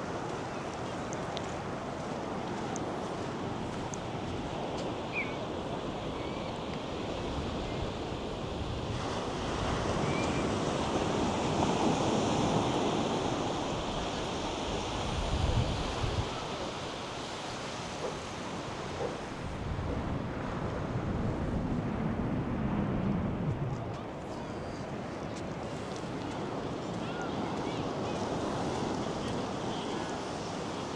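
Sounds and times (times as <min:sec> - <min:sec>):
surf breaking on beach: 0:02.9 - 0:30.9
wind buffeting microphone: 0:13.3 - 0:24.2.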